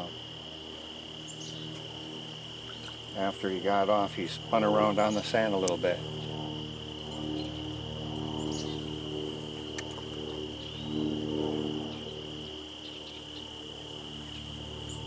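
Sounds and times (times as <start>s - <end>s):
insects trilling: 0.0s - 15.0s
low steady hum: 0.0s - 15.0s.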